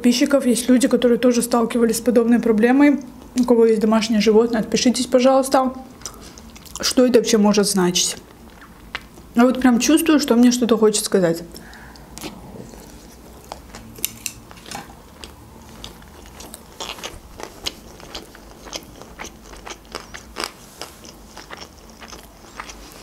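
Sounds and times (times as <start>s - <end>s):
chewing clicks and crackles: 6.0s - 6.9s, 11.6s - 22.9s.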